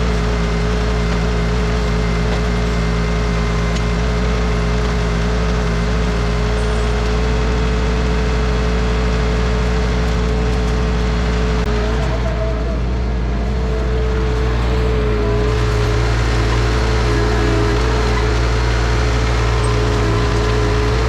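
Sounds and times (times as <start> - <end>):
tractor diesel engine running: 0.0 - 21.0
steady whine: 11.6 - 21.0.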